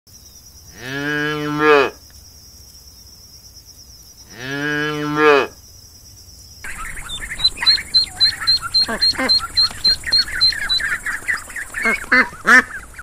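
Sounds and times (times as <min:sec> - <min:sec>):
calf mooing: 0:00.8 - 0:02.0, 0:04.3 - 0:05.5.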